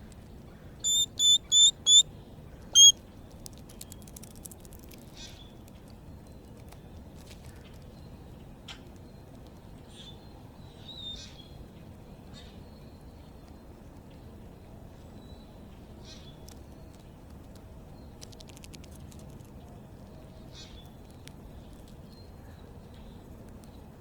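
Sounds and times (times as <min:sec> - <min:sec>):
small birds chirping: 0:00.8 - 0:02.0, 0:02.8 - 0:03.0
loud high beep: 0:00.9 - 0:02.0.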